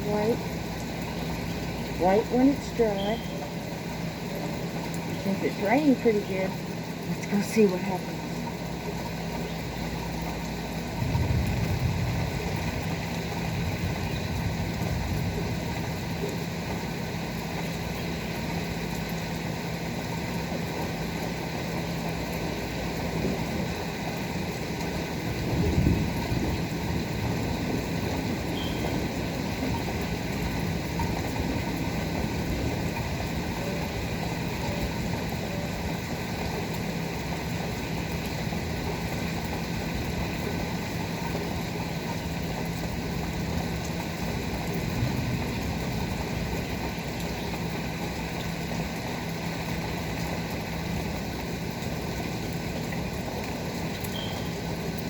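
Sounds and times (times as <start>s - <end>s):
heavy rain falling: 0.0s - 55.0s
rumble: 10.5s - 17.9s, 19.9s - 34.5s.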